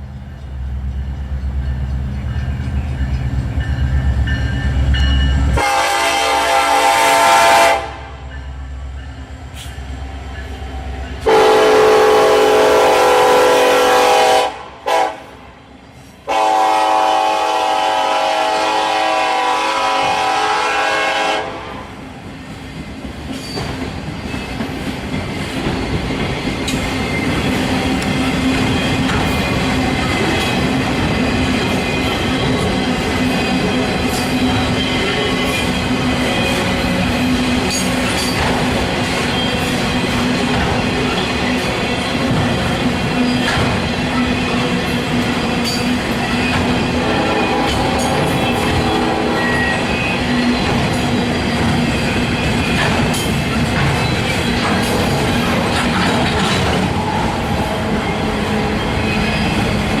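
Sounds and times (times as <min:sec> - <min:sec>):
train wheels clattering on rails: 0:00.0 - 0:06.2, 0:22.0 - 1:00.0
diesel locomotive rumble: 0:00.0 - 1:00.0
locomotive horn blasts: 0:05.6 - 0:08.2, 0:11.2 - 0:15.3, 0:16.3 - 0:21.9, 0:46.9 - 0:49.9.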